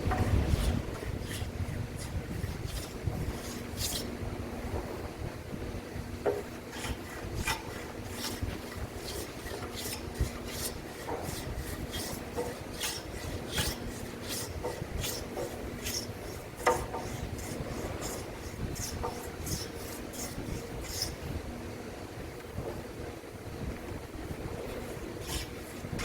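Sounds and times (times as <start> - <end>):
hand tool rasping on timber: 0.1 - 4.1, 6.2 - 21.3, 24.7 - 26.0.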